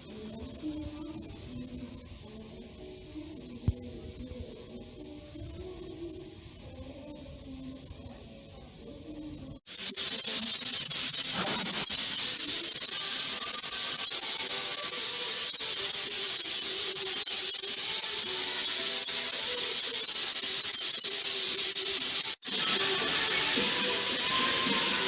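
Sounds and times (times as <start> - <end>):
steam locomotive hissing steam: 0.0 - 25.0.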